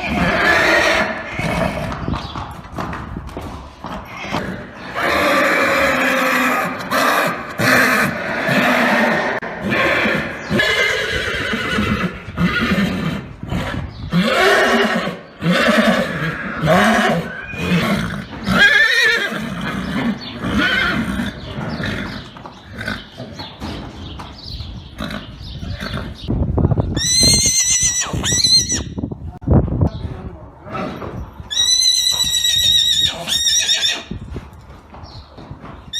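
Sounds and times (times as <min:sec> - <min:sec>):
horses neighing: 0:00.0 - 0:03.0, 0:03.6 - 0:26.3, 0:26.9 - 0:29.0, 0:30.6 - 0:34.3
shrill horse whinny: 0:04.1 - 0:22.1, 0:27.0 - 0:29.0, 0:30.8 - 0:34.2.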